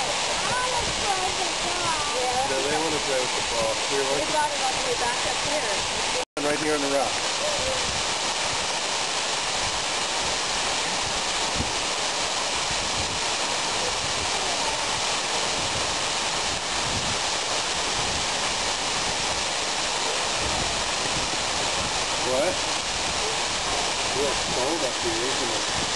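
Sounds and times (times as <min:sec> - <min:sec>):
waterfall rushing into pool: 0:00.0 - 0:25.9.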